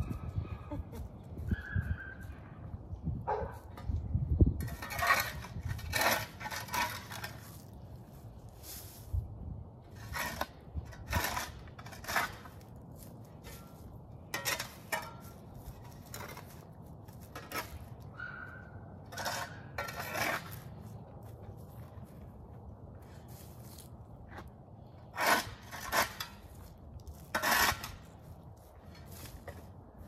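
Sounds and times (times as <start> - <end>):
digging tool scraping soil: 3.7 - 18.2, 18.9 - 22.2, 23.0 - 30.0.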